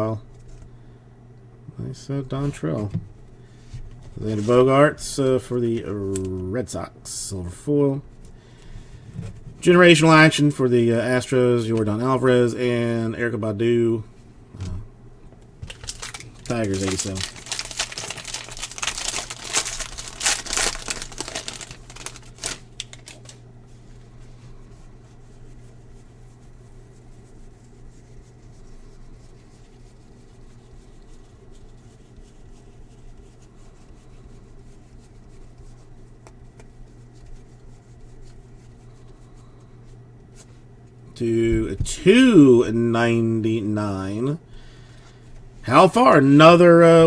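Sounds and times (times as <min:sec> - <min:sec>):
steady low hum: 0:00.0 - 0:47.0
card wrappers crinkling: 0:15.4 - 0:23.4.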